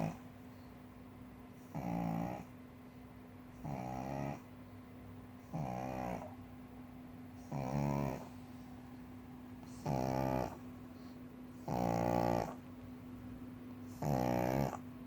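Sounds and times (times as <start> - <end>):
dog snoring: 0.0 - 0.2, 1.6 - 2.5, 3.6 - 4.5, 5.4 - 6.4, 7.4 - 8.4, 9.6 - 12.6, 13.8 - 14.9.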